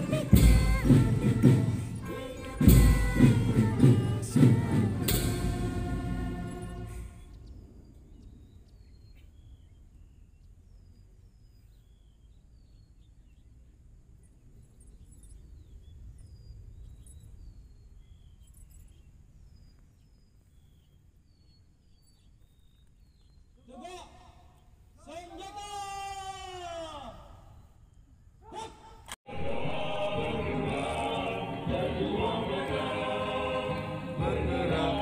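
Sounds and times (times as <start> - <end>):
small birds chirping: 6.4 - 25.4.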